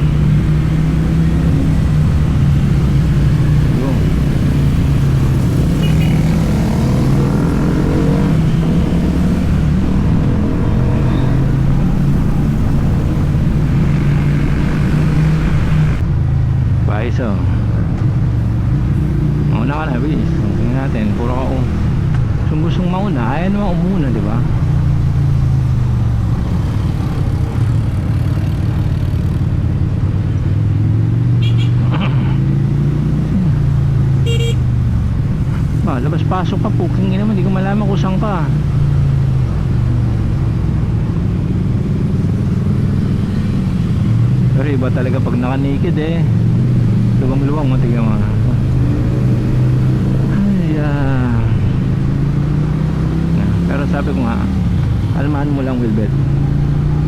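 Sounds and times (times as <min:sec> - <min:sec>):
motorcycle engine running: 0:00.0 - 0:16.5
motorcycle engine cruising: 0:00.0 - 0:57.0
road and wind noise: 0:00.0 - 0:57.0.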